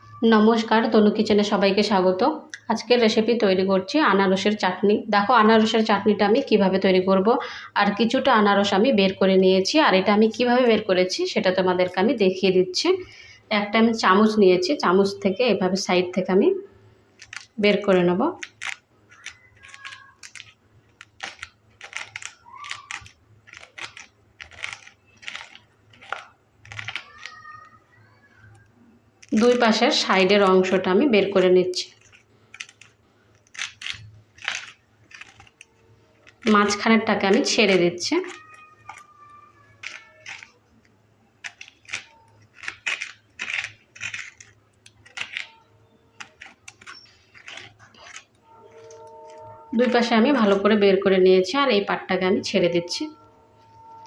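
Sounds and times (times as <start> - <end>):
spoon scraping pineapple flesh: 16.8 - 50.9.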